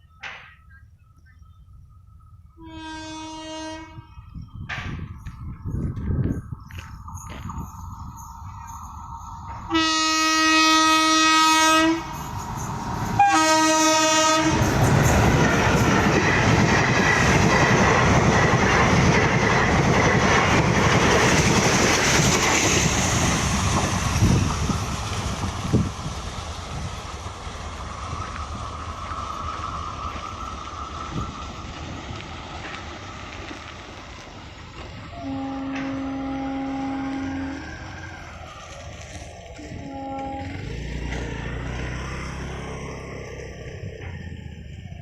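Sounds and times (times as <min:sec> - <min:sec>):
train rumbling on track: 0:00.0 - 0:45.0
train horn blasts: 0:02.6 - 0:04.3, 0:09.7 - 0:12.2, 0:13.2 - 0:14.7, 0:35.1 - 0:37.9, 0:39.6 - 0:40.8.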